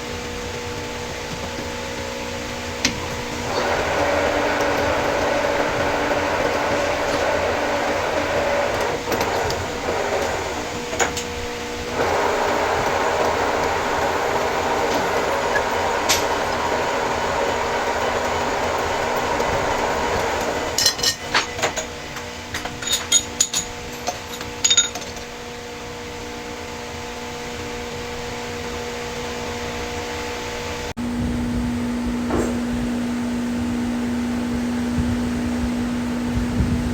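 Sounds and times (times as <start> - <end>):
lathe humming: 0.0 - 30.9
metallic clinks and knocks: 20.8 - 25.3.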